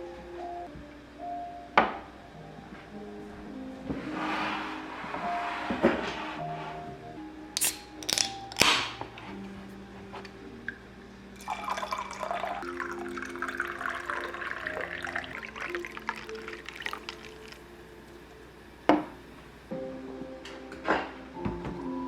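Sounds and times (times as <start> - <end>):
soft background music: 0.0 - 22.0
liquid pouring and dripping: 11.4 - 17.7.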